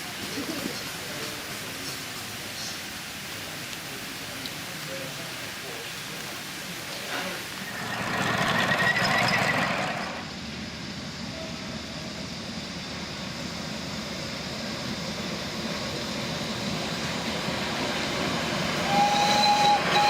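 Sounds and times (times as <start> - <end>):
miniature train running on track: 5.7 - 10.4, 14.8 - 20.0.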